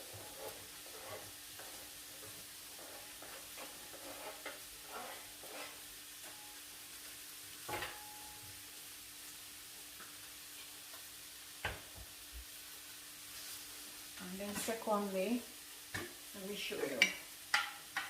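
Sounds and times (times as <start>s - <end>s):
chicken sizzling on grill: 0.0s - 18.0s
light scrapes and clicks: 0.2s - 5.8s.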